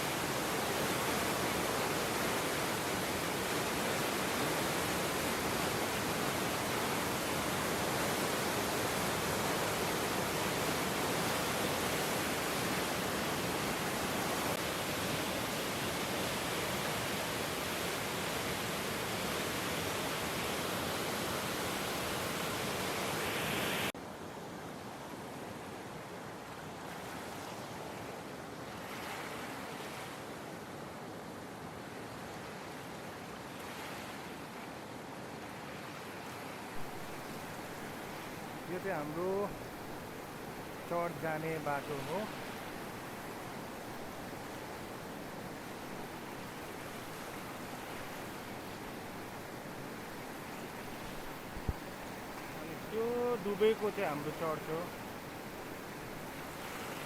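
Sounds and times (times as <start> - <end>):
flooded river rushing: 0.0 - 23.9, 31.5 - 57.0.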